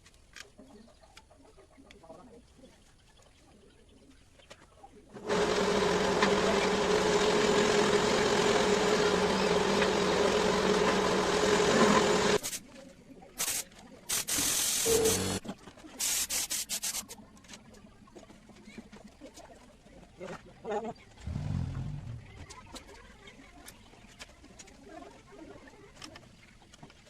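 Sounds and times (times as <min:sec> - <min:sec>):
power tool motor running: 0:05.2 - 0:12.4, 0:14.8 - 0:15.4.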